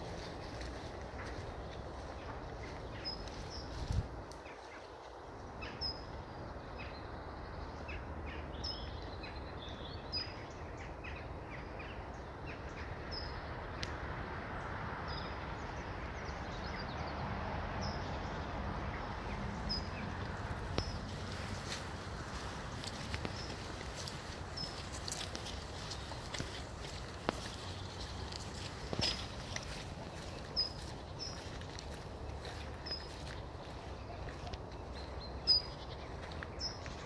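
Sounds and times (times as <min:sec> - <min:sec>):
outdoor background noise: 0:00.0 - 0:37.0.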